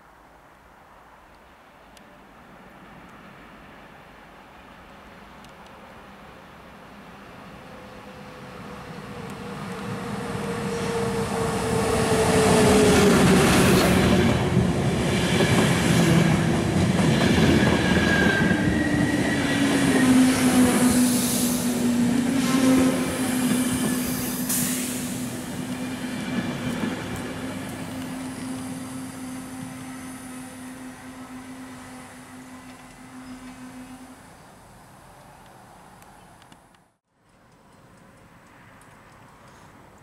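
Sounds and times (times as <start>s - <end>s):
brake squeal: 28.4s - 34.2s.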